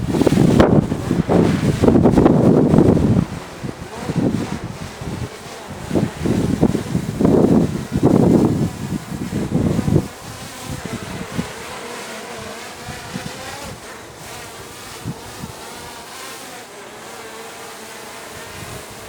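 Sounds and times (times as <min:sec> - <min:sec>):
wind buffeting microphone: 0:00.0 - 0:16.5, 0:18.0 - 0:19.0
drone propellers humming: 0:00.0 - 0:19.0.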